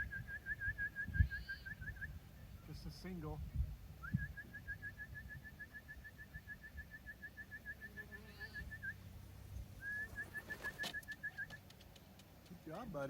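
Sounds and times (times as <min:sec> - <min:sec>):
rapid whistled trill: 0:09.8 - 0:11.6.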